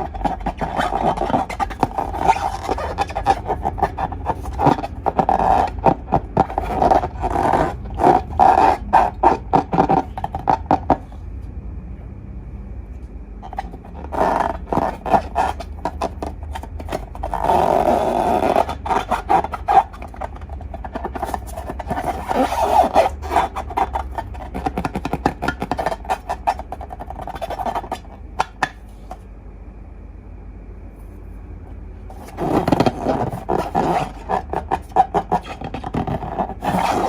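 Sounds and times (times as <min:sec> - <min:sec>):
slime squelching by hand: 0:00.0 - 0:11.1.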